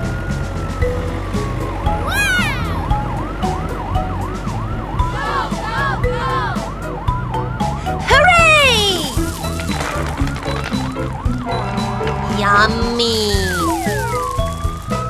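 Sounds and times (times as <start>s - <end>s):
backing music beat: 0.0s - 9.6s
cartoon siren wailing: 1.9s - 9.5s, 11.0s - 14.8s
falling whistle glide: 13.5s - 14.7s.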